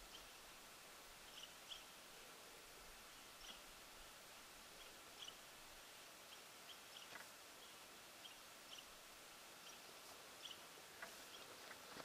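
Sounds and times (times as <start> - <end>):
small bird chip calls: 1.3 - 2.0, 3.4 - 3.7, 4.8 - 5.5, 6.2 - 9.0, 9.6 - 11.9.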